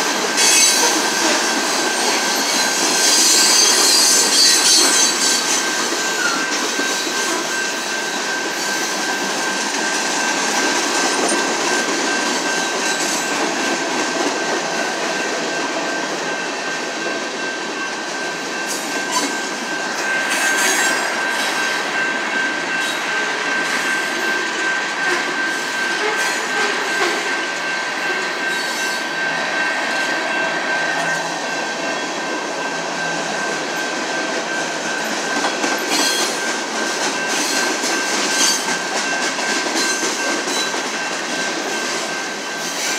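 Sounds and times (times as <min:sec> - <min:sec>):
high-pitched wheel squeal: 0:00.4 - 0:01.0, 0:02.0 - 0:06.4.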